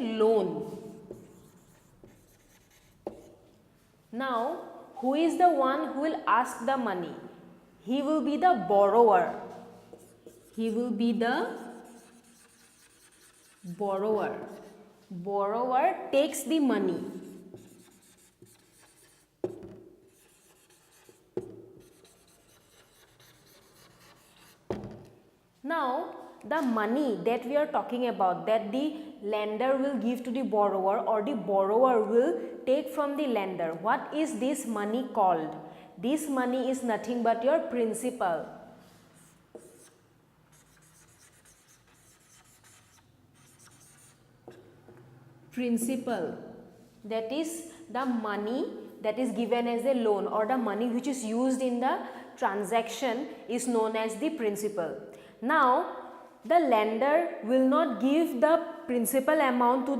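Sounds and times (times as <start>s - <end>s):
pen scratching on surface: 0.6s - 3.4s, 9.8s - 14.8s, 17.0s - 24.7s, 39.2s - 44.6s.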